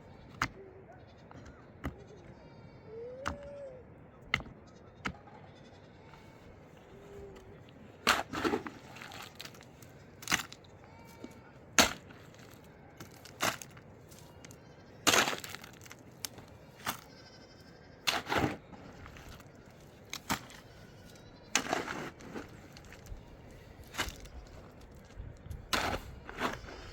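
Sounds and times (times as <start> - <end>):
sharp cracks and knocks: 11.8 - 13.8.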